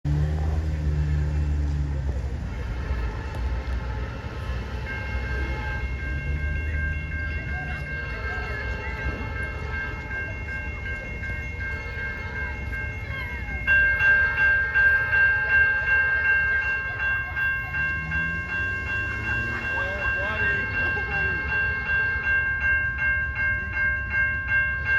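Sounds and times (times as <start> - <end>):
train rumbling: 0.0 - 24.9
railroad crossing bell ringing: 0.1 - 24.9.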